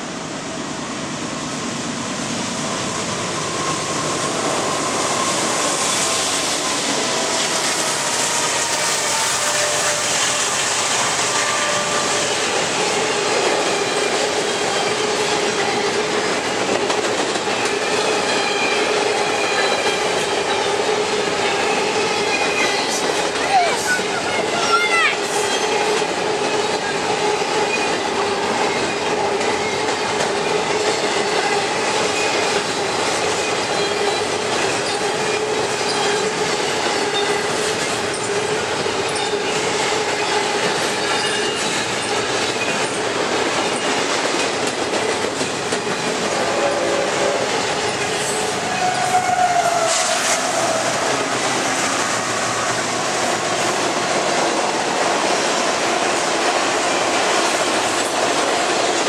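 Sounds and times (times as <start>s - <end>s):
freight train wheels on rail: 0.0s - 59.0s.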